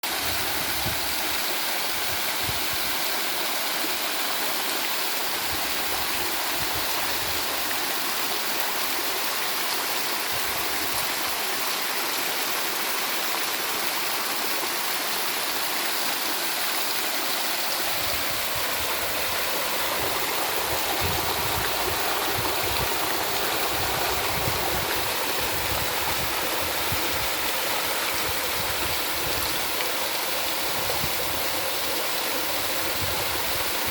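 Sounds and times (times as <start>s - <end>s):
running water babbling: 0.0s - 33.9s.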